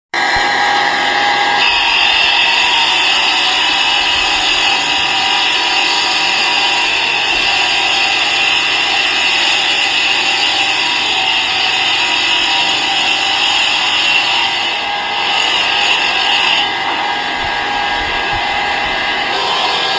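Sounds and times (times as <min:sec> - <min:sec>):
power tool running: 0:00.2 - 0:19.9.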